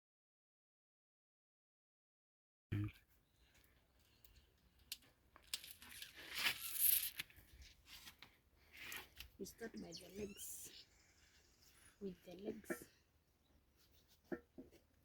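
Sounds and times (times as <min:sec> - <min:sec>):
ripping crinkling: 0:04.9 - 0:09.2.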